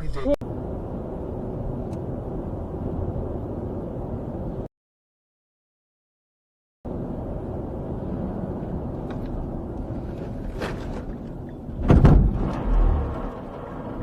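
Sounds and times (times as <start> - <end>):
vehicle engine and road rumble: 0.0 - 4.7, 6.9 - 14.0
dull heavy thud: 11.8 - 12.6
sudden loud bang: 11.8 - 13.1.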